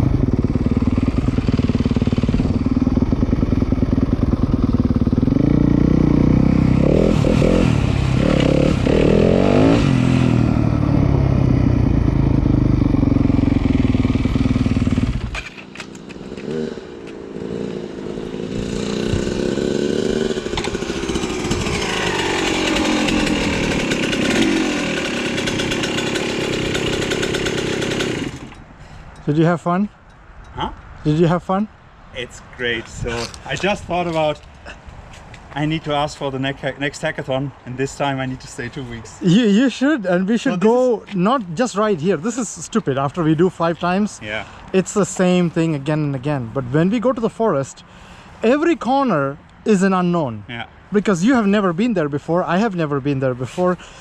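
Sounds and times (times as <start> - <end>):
dirt bike engine revving: 0.0 - 15.3, 16.0 - 28.6
second dirt bike engine revving: 0.0 - 15.3, 16.0 - 28.6.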